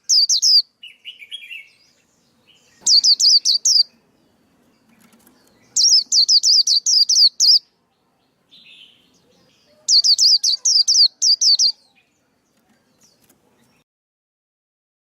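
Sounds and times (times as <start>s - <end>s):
bird singing high sliding chirps: 0.0s - 4.0s, 4.6s - 7.6s, 8.6s - 12.0s.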